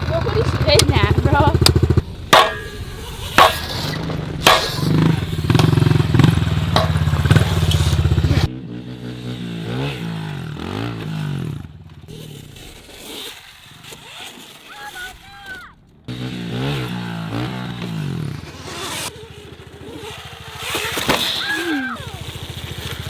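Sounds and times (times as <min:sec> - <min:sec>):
engine revving: 0:00.0 - 0:23.0
off-road vehicle engine running: 0:00.0 - 0:23.0
sharp knocks: 0:01.6 - 0:07.4.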